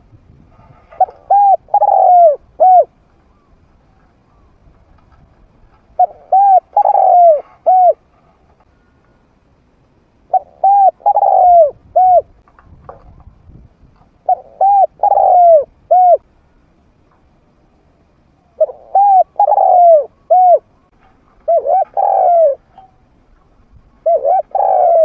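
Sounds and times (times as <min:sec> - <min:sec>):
dove cooing: 0:00.9 - 0:03.5, 0:05.9 - 0:08.1, 0:10.3 - 0:12.4, 0:14.2 - 0:16.2, 0:18.5 - 0:20.8, 0:21.4 - 0:22.9, 0:24.0 - 0:25.0.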